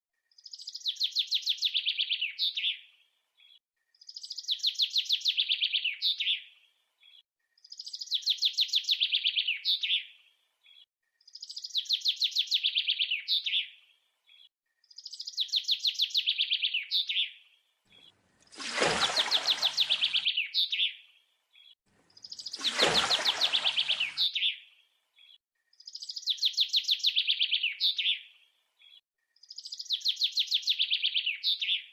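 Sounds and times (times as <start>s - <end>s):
bird chirping trill: 19.0s - 21.0s, 21.6s - 24.6s.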